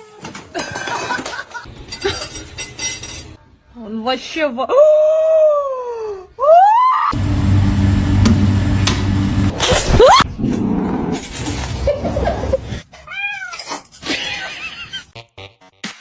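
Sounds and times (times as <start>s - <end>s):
cat yowling and meowing: 13.0s - 15.0s.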